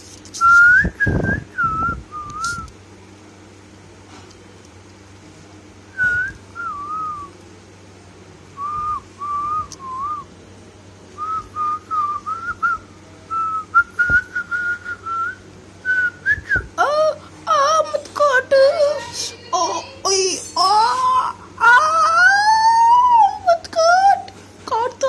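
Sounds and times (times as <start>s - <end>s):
person whistling a tune: 0.4s - 2.7s, 6.0s - 7.3s, 11.2s - 16.7s.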